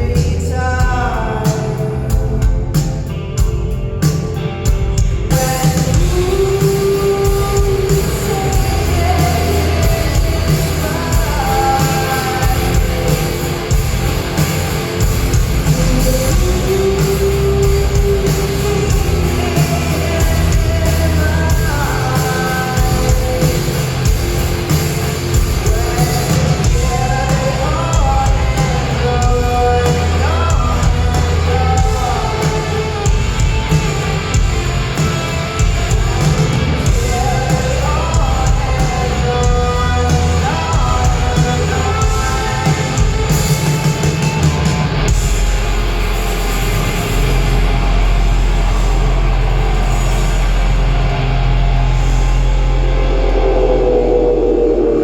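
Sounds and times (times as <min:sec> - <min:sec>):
live rock band playing: 0:00.0 - 0:53.8
woman singing: 0:05.3 - 0:13.7, 0:15.5 - 0:24.2, 0:25.5 - 0:33.5, 0:36.9 - 0:43.8.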